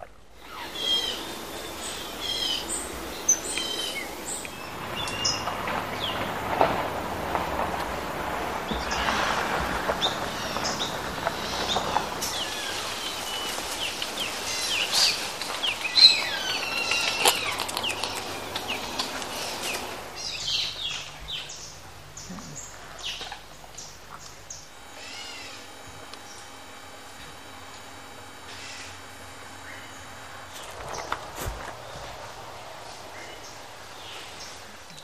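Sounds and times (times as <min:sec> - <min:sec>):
jungle birds calling: 0:00.0 - 0:35.0
steady background hiss: 0:00.0 - 0:35.0.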